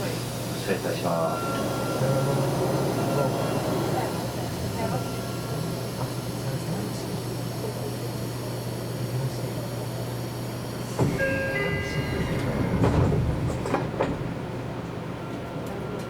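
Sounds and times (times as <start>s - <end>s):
train running hum and rumble: 0.0s - 16.0s
train wheels clattering: 11.0s - 14.5s
high metallic squeal: 11.2s - 13.1s.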